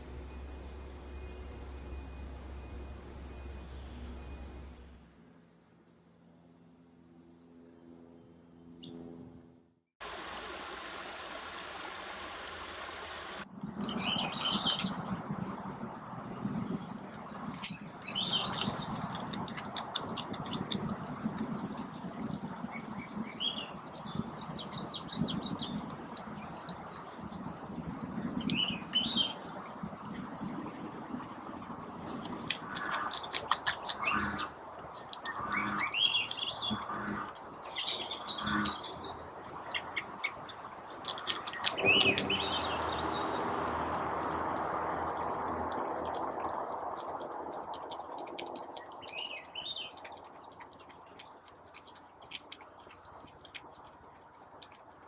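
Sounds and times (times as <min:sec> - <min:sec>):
songbirds chirping and trilling: 0:13.6 - 0:15.2, 0:16.5 - 0:30.9, 0:31.7 - 0:55.0.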